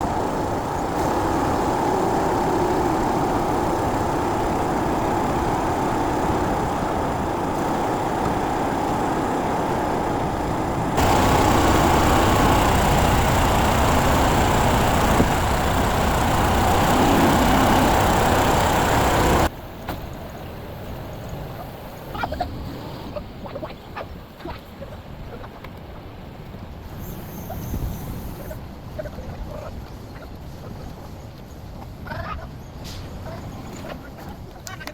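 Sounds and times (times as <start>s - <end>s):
diesel engine running: 0.0s - 19.5s.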